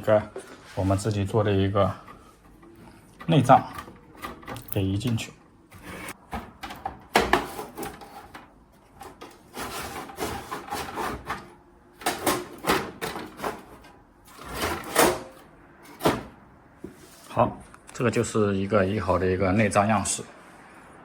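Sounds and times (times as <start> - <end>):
module scraping into metal chassis: 5.7 - 6.2, 9.0 - 11.5, 12.2 - 17.3.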